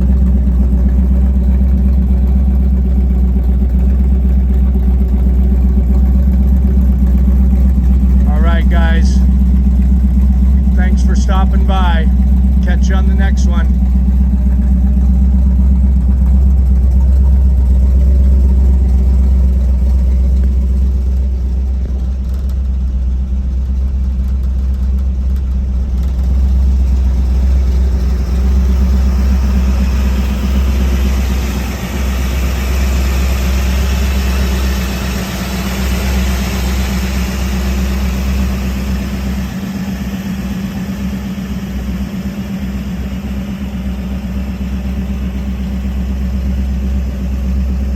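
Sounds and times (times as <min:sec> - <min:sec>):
car engine running: 0:00.0 - 0:47.9.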